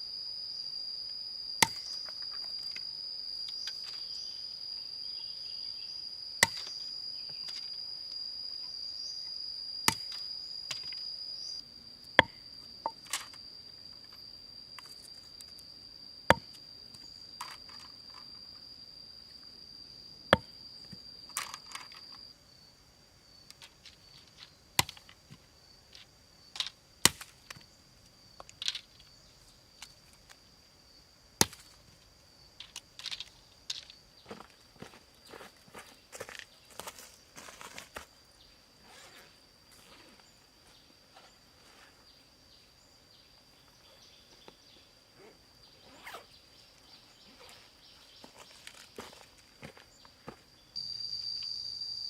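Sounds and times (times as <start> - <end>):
high-pitched insect drone: 0.0 - 52.0
sharp chopping knocks: 1.6 - 1.9, 6.4 - 6.6.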